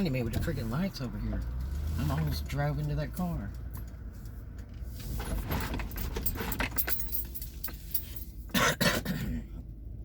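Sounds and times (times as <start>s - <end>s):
car rumble from inside: 0.0s - 10.0s
metallic clicking and jingling: 5.3s - 8.5s.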